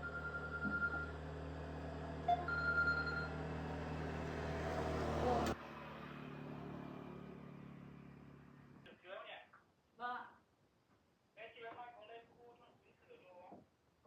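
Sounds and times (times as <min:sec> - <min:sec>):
engine running: 0:00.0 - 0:08.8.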